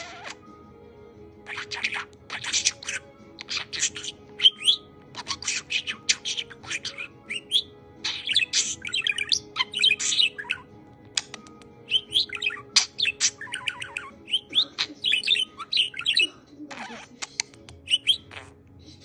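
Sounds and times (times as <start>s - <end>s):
budgerigar chattering: 1.5s - 18.6s
sharp clicks: 11.1s - 11.8s.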